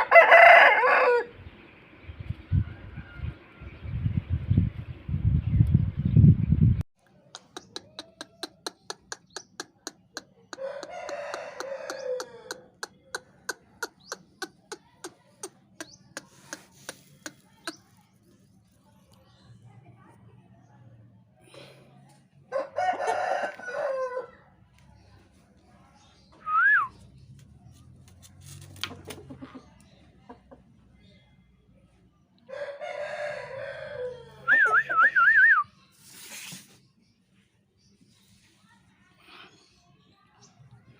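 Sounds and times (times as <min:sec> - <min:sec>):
rooster crowing: 0:00.0 - 0:01.3, 0:10.6 - 0:12.6, 0:22.5 - 0:24.4, 0:32.5 - 0:34.8.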